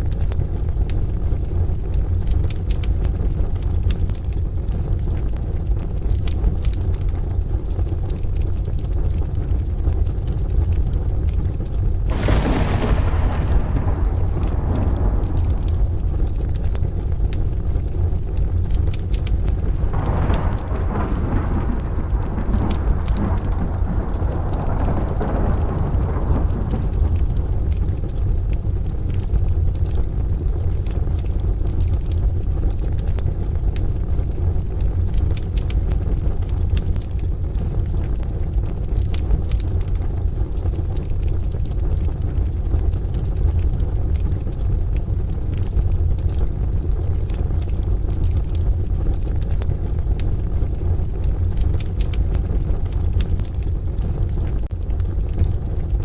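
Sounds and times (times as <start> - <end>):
steady rain: 0.0 - 56.0
wood fire crackling: 0.0 - 56.0
thunder rumble: 11.8 - 32.8.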